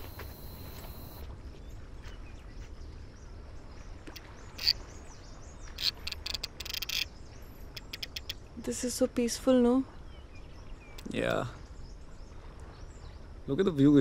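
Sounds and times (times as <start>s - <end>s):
birds chirping: 0.0s - 13.3s.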